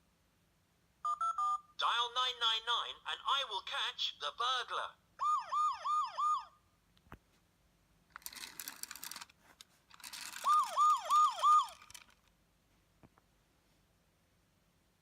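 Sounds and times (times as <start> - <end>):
toy siren whooping: 5.2 - 6.6, 10.2 - 12.2.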